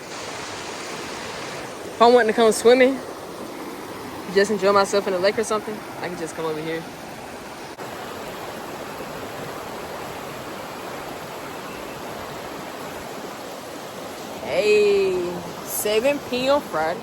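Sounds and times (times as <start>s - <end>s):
rushing creek and waterfall: 0.0s - 17.0s.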